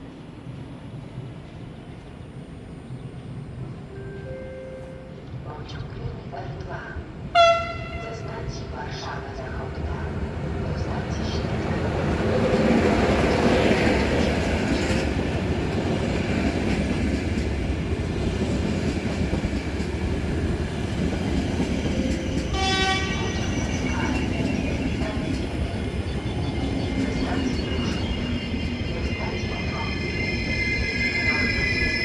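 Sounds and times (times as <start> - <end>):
electric train rumbling: 0.0 - 32.0
train horn toot: 7.3 - 8.3, 22.5 - 24.2.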